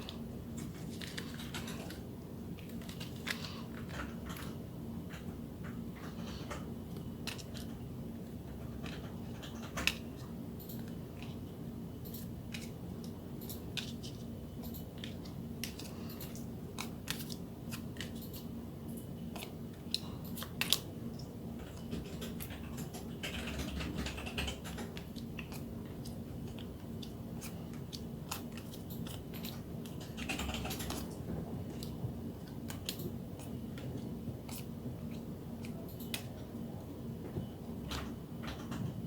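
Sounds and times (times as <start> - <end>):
cards clicking and sliding: 0.0 - 4.6, 6.1 - 7.8, 12.2 - 14.2, 14.8 - 23.6, 24.2 - 36.4.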